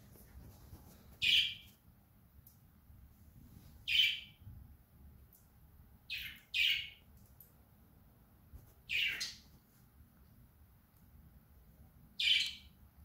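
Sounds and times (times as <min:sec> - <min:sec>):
small bird chirping: 0:01.1 - 0:01.8, 0:03.8 - 0:04.4, 0:06.1 - 0:07.1, 0:08.8 - 0:09.5, 0:12.2 - 0:12.8.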